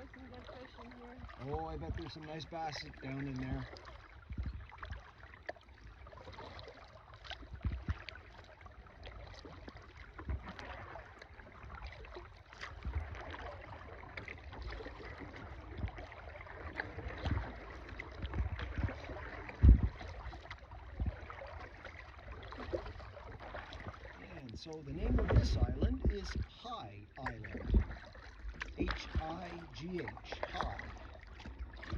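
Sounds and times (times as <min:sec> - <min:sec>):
paddle dipping and dripping water: 0:00.0 - 0:31.9
sharp low thump: 0:19.6 - 0:20.1.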